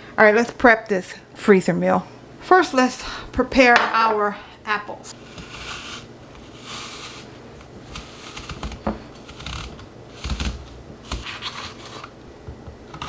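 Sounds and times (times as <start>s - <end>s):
scraping apples: 5.1s - 12.2s.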